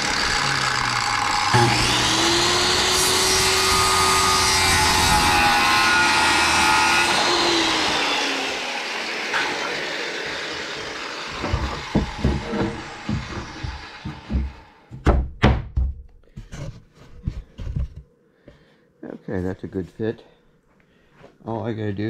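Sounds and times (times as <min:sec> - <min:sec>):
power saw cutting wood: 0:00.0 - 0:14.9
wood knocking: 0:11.3 - 0:16.5.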